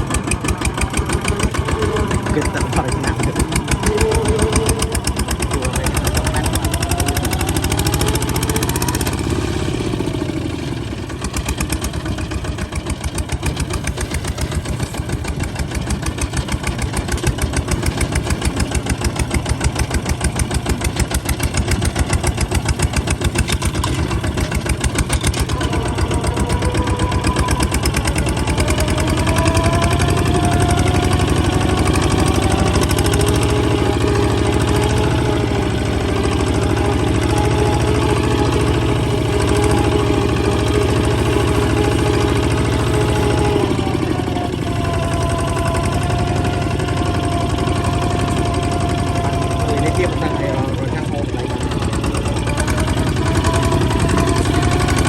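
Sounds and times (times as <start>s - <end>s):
rising whine: 0.0s - 10.5s, 24.0s - 55.0s
tractor diesel engine chugging: 0.0s - 55.0s.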